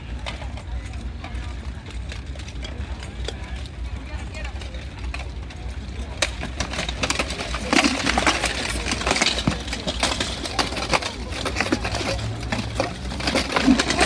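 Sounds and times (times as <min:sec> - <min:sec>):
weapons clanking on armor: 0:06.4 - 0:14.0.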